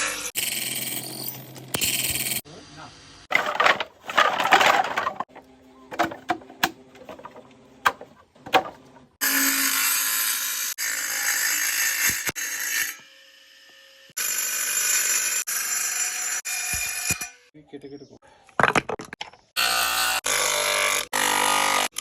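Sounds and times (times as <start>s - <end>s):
knocks and clicks of handling: 3.3s - 9.0s
power tool cutting horn: 9.2s - 17.3s.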